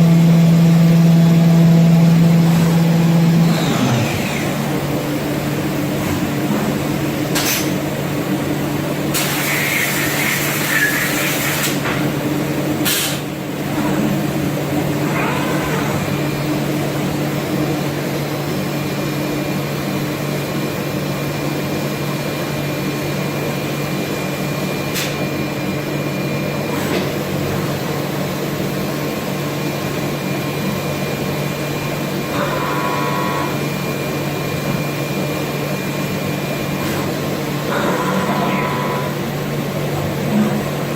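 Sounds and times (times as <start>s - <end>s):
woodworking machine humming: 0.0s - 7.3s, 35.8s - 40.9s.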